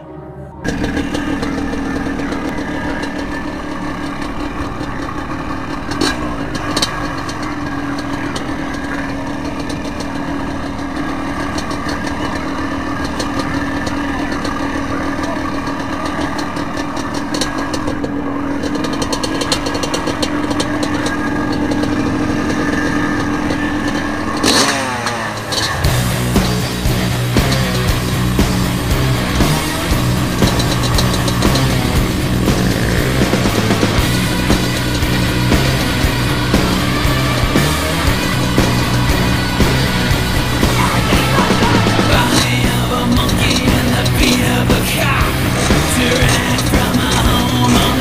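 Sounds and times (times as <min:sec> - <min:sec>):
dirt bike engines droning: 0:00.0 - 0:48.0.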